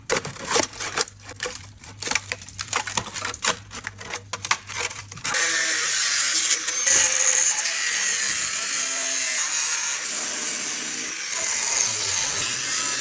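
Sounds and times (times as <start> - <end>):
power tool whirring: 5.3 - 13.0.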